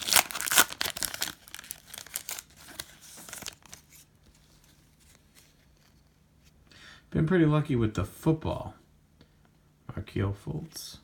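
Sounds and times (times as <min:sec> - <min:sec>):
foil wrapper tearing and crinkling: 0:00.0 - 0:03.8.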